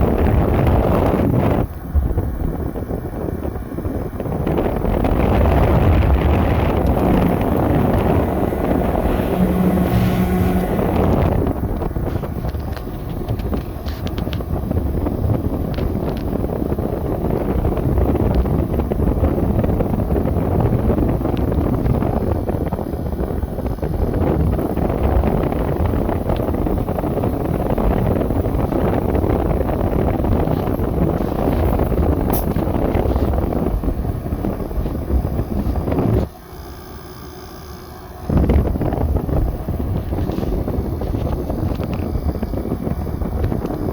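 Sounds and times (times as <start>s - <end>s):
air conditioner fan rushing: 0.0s - 43.9s
air conditioner hum: 4.4s - 12.2s.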